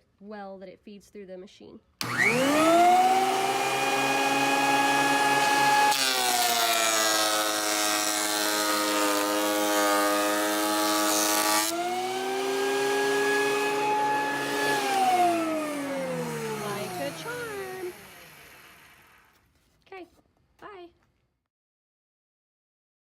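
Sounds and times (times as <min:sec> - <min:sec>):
cutterhead planing wood: 0:02.0 - 0:19.2
thickness planer motor whining: 0:02.0 - 0:19.3.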